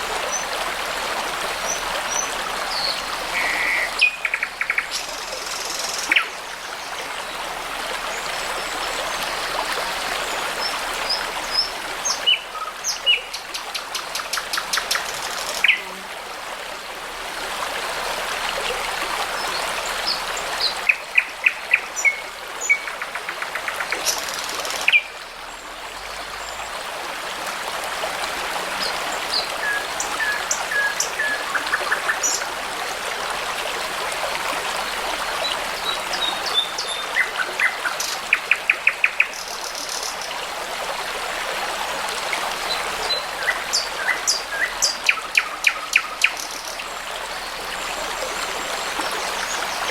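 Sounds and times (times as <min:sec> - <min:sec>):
brook babbling: 0:00.0 - 0:49.9
songbirds singing: 0:35.4 - 0:40.3.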